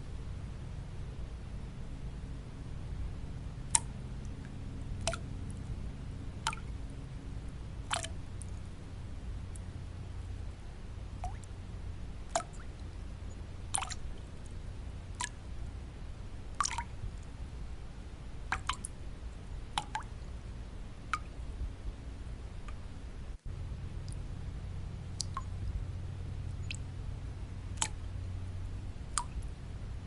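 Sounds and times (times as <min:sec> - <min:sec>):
low white-noise hiss: 0:00.0 - 0:30.0
water drops plinking: 0:03.8 - 0:05.3, 0:06.5 - 0:06.7, 0:07.9 - 0:08.5, 0:11.2 - 0:11.5, 0:12.3 - 0:12.8, 0:16.6 - 0:16.9, 0:18.5 - 0:18.9, 0:19.8 - 0:20.1, 0:25.2 - 0:25.6.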